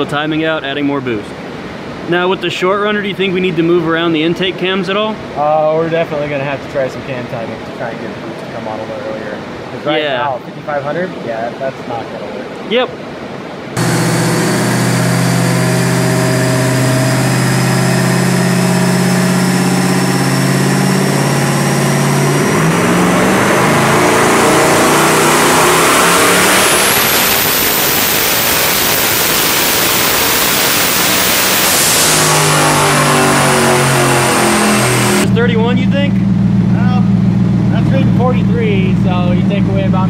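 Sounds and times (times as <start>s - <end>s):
turbo whistle: 13.8s - 35.3s
car engine revving: 13.8s - 40.0s.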